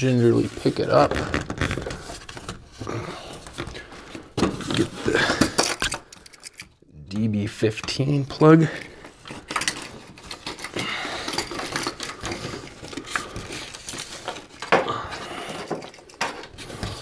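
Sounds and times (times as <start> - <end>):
cables and plugs rattling: 0.0 - 17.0.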